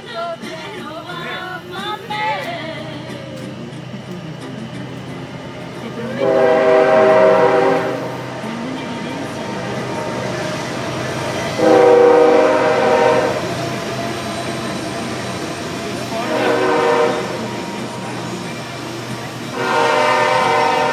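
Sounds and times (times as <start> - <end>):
steady rumble: 0.0 - 20.9
horn blasts: 6.0 - 8.3, 11.4 - 13.6, 16.0 - 17.9, 19.4 - 20.9.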